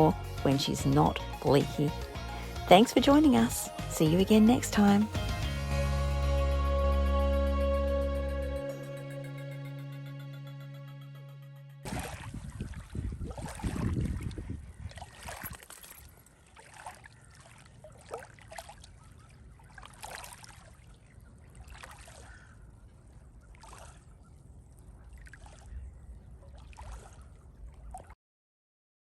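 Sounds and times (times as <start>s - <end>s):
water splashing and trickling: 0.0s - 5.6s, 11.8s - 28.2s.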